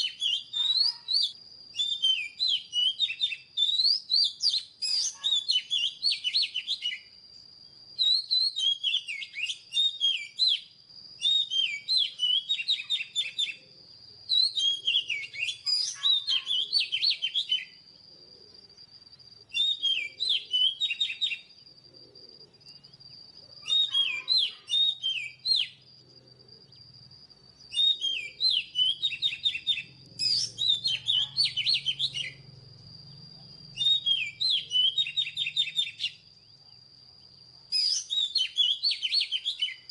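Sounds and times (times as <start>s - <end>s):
bird singing whistles and chatter: 0.0s - 7.2s, 7.9s - 17.9s, 19.4s - 21.8s, 22.4s - 25.9s, 27.6s - 32.5s, 33.1s - 39.9s.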